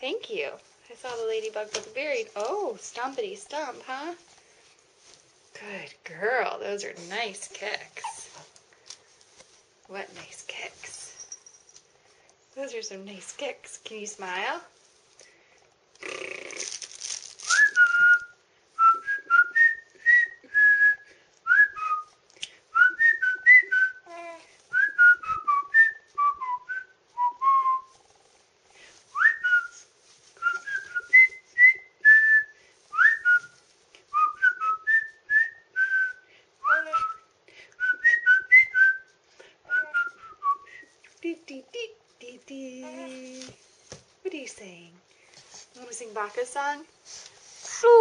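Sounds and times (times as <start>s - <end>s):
person whistling a tune: 17.5s - 22.1s, 22.7s - 24.1s, 24.7s - 27.9s, 30.4s - 33.5s, 34.1s - 37.2s, 37.8s - 39.1s, 39.7s - 40.9s.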